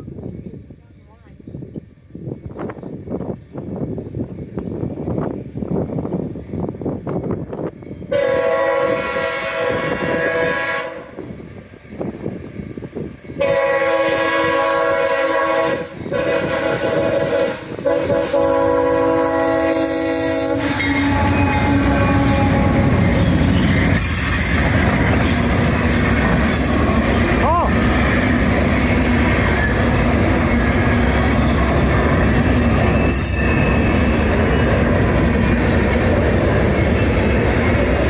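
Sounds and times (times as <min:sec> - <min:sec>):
train rumbling on rails: 0:00.0 - 0:38.0
locomotive air horn blasts: 0:08.1 - 0:11.2, 0:13.4 - 0:24.5.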